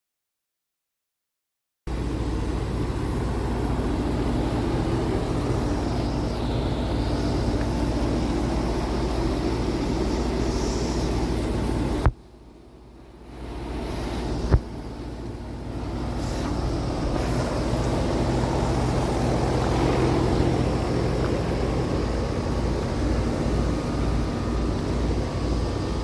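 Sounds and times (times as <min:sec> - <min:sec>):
rushing noise: 0:01.9 - 0:12.1
heat pump compressor hum: 0:01.9 - 0:26.0.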